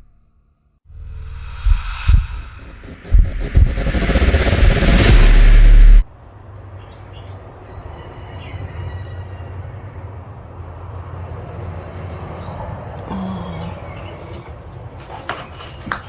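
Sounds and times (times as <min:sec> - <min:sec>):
steady low rumble: 0:00.9 - 0:06.1.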